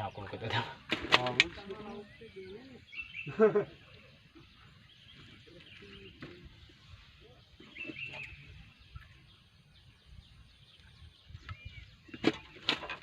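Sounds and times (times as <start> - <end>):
faint distant voices: 0.0 - 8.3
short bird chirps: 4.3 - 12.6.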